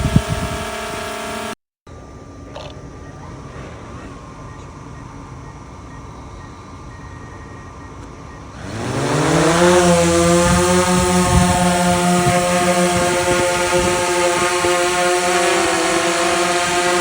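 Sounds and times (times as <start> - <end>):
drone motors whining and buzzing: 0.0 - 1.6, 8.0 - 17.0
faint steady hum: 0.0 - 8.6.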